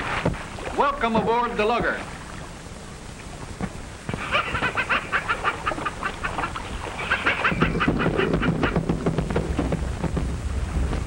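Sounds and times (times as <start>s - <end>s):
low steady hum: 0.0s - 11.0s
bird clucking calls: 4.1s - 8.9s.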